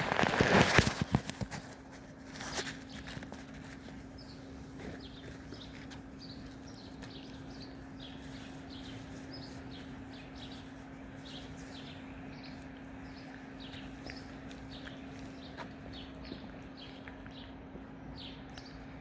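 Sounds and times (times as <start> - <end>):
low steady hum: 1.1 - 19.0
small birds chirping: 2.3 - 19.0.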